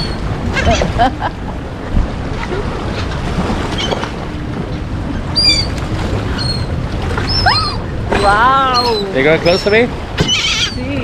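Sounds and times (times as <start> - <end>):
seagull calls: 0.0 - 1.0, 5.3 - 11.0
wind rumble on microphone: 0.0 - 11.0.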